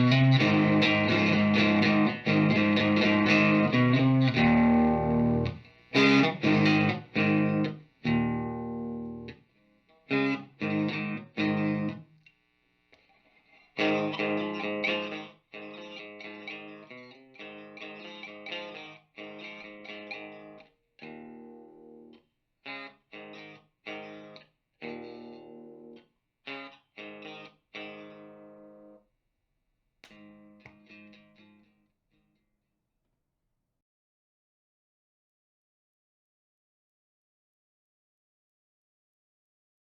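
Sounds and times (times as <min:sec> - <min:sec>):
electric guitar chords: 0:00.0 - 0:09.4, 0:10.1 - 0:12.1, 0:13.8 - 0:29.0.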